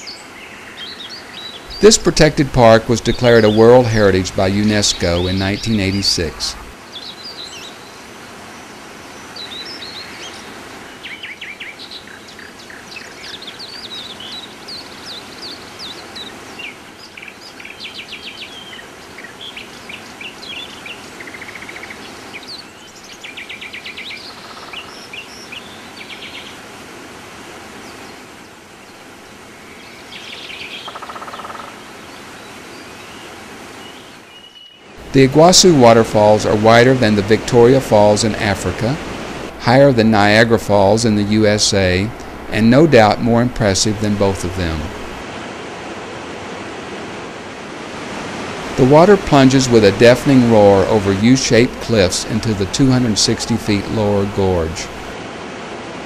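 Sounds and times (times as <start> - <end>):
birds chirping and trilling: 0.0 - 45.1.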